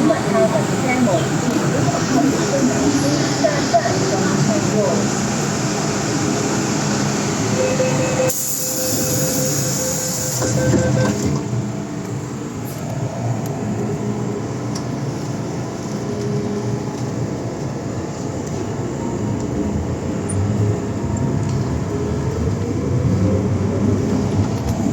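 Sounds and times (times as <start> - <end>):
steady whine: 0.0 - 24.9
wheels rumbling on rail: 0.0 - 24.9
high hiss: 8.2 - 10.5.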